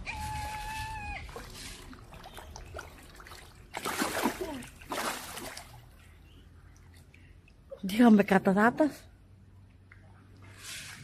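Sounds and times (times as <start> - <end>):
water splashing: 0.3 - 6.0.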